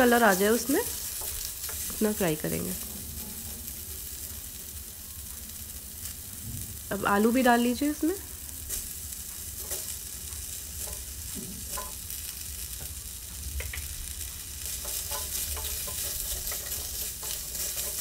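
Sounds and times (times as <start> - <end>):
wooden spatula stirring: 0.0 - 4.6, 8.7 - 11.9, 14.6 - 18.0
vegetables sizzling in oil: 0.0 - 18.0.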